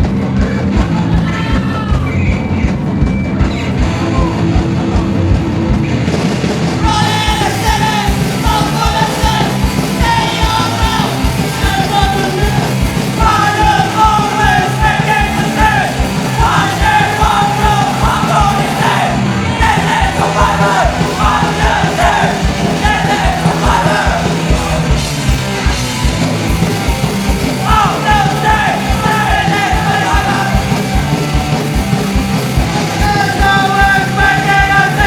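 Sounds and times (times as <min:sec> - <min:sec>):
punk band playing live: 0:00.0 - 0:35.0.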